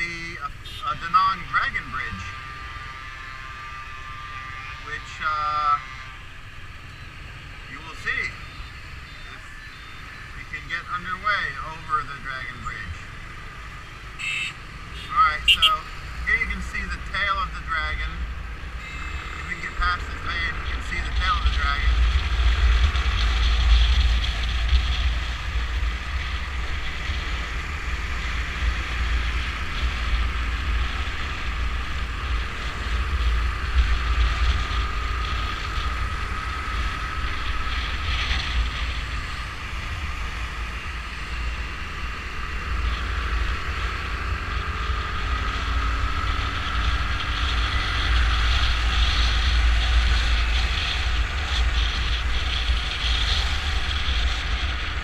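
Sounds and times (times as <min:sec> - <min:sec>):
motorcycle engine: 0:00.0 - 0:55.0
road traffic: 0:00.0 - 0:55.0
wind rumbling on microphone: 0:15.0 - 0:55.0.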